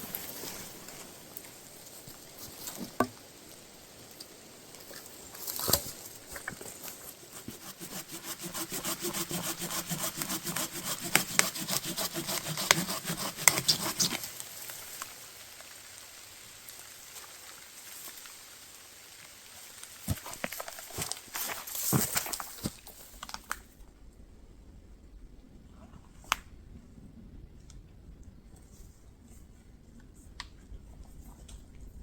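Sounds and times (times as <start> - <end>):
hand saw cutting firewood: 6.9 - 14.4.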